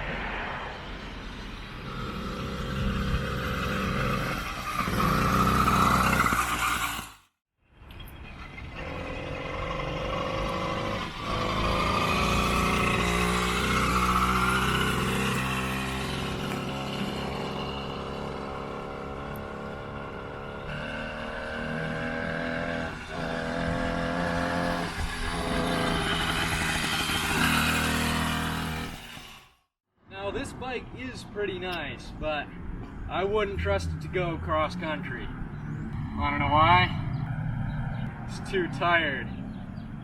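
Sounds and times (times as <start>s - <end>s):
small two-stroke motor running: 1.8s - 7.2s, 8.6s - 29.6s.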